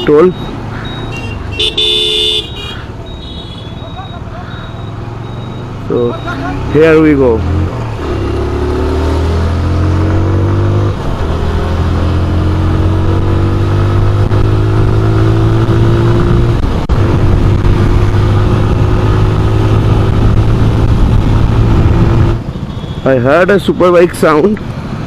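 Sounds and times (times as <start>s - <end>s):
motorcycle engine accelerating: 5.1s - 22.6s.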